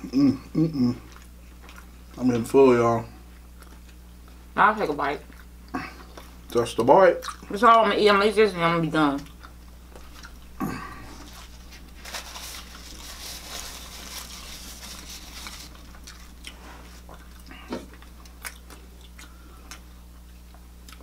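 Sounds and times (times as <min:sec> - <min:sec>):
chewing and mouth clicks: 0:01.0 - 0:02.4, 0:03.3 - 0:04.4, 0:05.2 - 0:07.5, 0:09.2 - 0:10.5, 0:15.5 - 0:21.0
soft rustling: 0:11.0 - 0:17.1.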